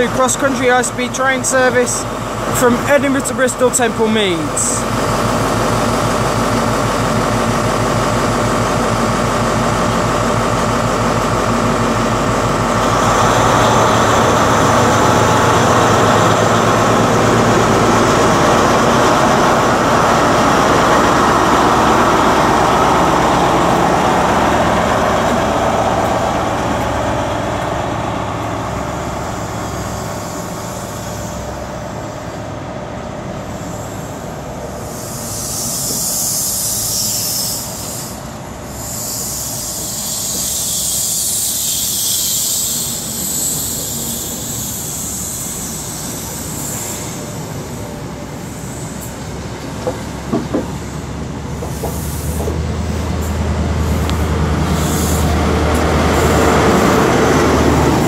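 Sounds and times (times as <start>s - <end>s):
diesel train engine: 0.0s - 58.0s.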